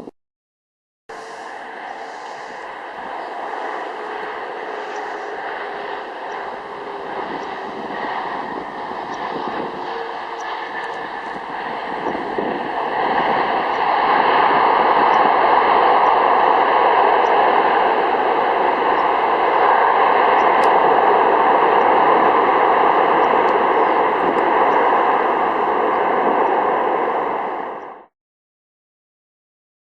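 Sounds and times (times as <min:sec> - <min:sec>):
jet engine noise in flight: 0:01.1 - 0:28.1.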